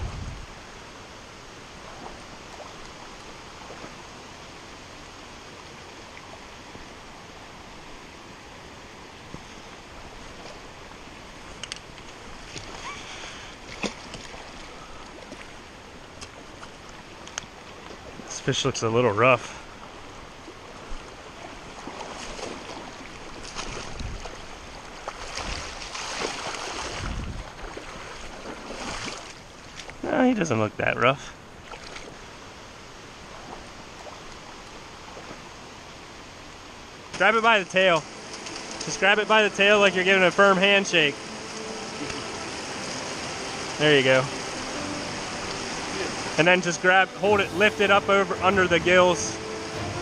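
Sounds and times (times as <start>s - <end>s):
creek water rushing over stones: 0.0s - 50.0s
fish splashing in shallow water: 11.3s - 18.3s, 19.6s - 30.0s, 31.5s - 37.2s, 38.0s - 39.1s.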